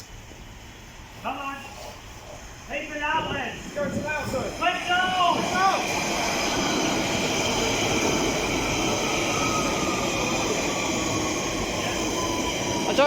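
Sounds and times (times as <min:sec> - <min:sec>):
train wheels rumbling on rails: 0:00.0 - 0:13.0
high whining tones: 0:02.8 - 0:13.0.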